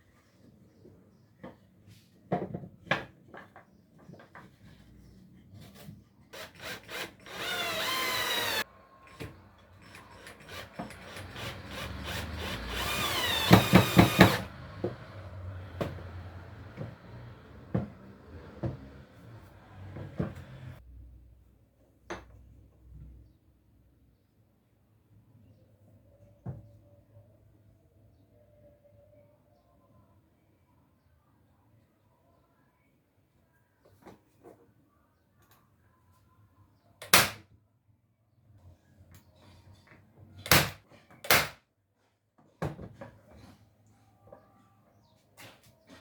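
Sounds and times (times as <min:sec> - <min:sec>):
power drill running: 0:06.4 - 0:14.8.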